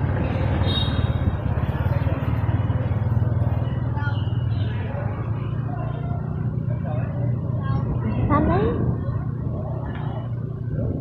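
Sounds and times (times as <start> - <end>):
wind rumble on microphone: 7.6 - 11.0.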